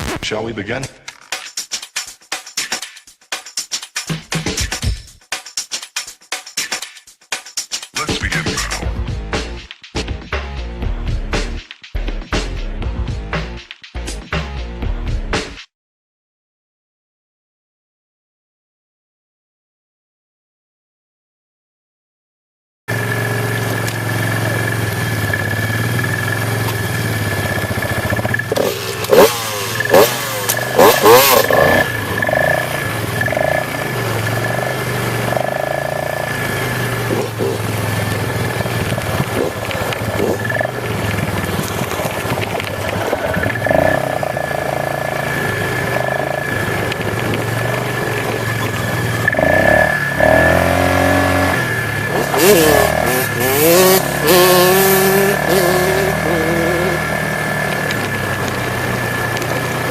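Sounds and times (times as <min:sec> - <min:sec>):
vehicle engine running and revving: 0:22.9 - 0:59.9.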